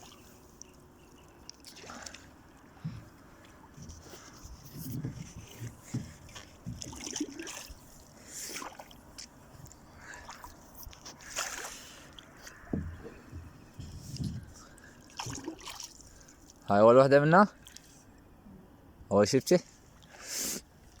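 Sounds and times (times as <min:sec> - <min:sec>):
water splashing around boat: 0:00.0 - 0:16.8, 0:17.5 - 0:18.1
low thumps: 0:12.7 - 0:14.6.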